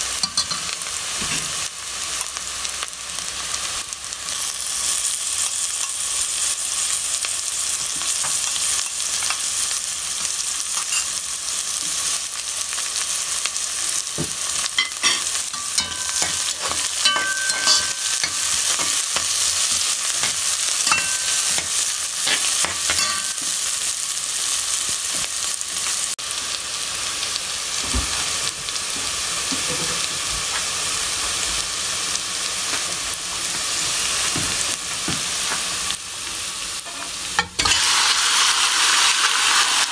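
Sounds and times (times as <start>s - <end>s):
food sizzling in hot oil: 0.0s - 39.9s
spoon scraping and clinking on pan: 0.2s - 0.8s, 10.8s - 11.2s, 14.7s - 23.6s, 36.8s - 37.9s.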